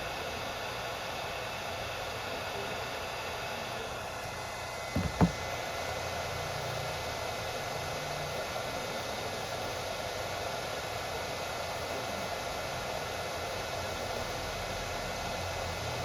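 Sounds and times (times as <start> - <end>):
short knocks: 5.0 - 5.4.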